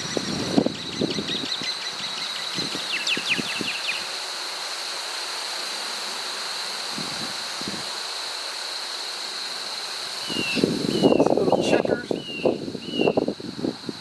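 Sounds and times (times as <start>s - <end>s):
bird chirping: 0.0s - 4.1s, 10.2s - 13.2s
high-pitched insect drone: 0.0s - 14.0s.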